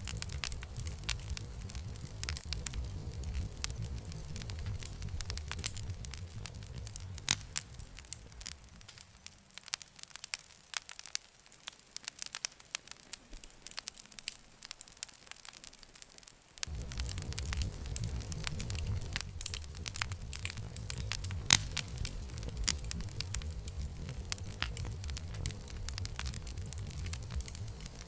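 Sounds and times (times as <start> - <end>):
low rumble: 0.0 - 8.8, 16.6 - 28.0
campfire wood crackling and popping: 0.0 - 28.0.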